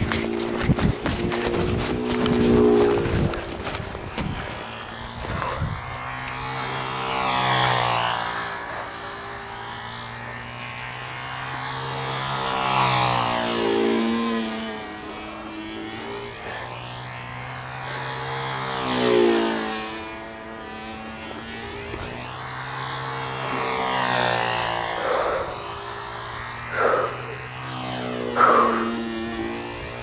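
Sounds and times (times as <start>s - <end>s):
model plane engine buzzing: 0.0s - 30.0s.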